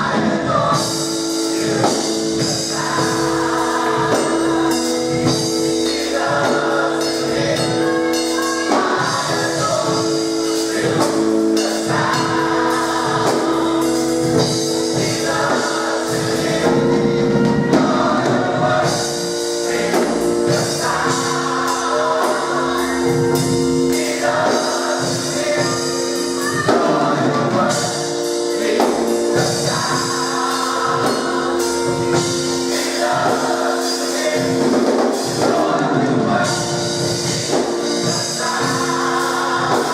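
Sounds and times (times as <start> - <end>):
drums: 0.0 - 39.9
gospel choir singing: 0.0 - 39.9.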